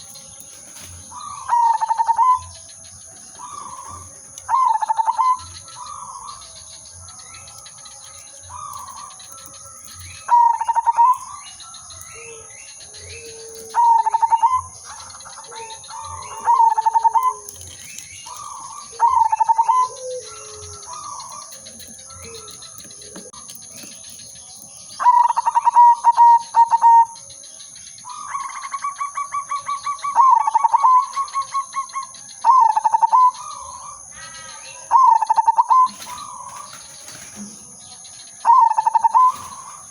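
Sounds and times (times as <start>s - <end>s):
dove cooing: 0.0s - 24.4s, 25.0s - 27.3s, 28.1s - 37.8s, 38.4s - 39.9s
faint chirping: 0.0s - 39.9s.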